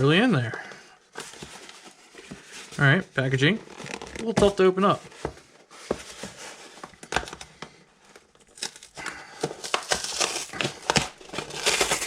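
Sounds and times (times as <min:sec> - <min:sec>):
cardboard and paper tearing: 0:08.4 - 0:12.0.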